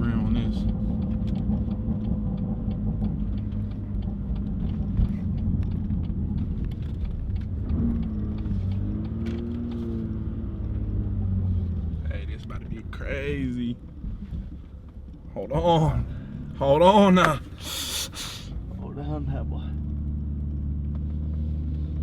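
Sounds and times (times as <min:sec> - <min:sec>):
car engine and road rumble: 0:00.0 - 0:22.0
faint clicks: 0:00.6 - 0:10.8.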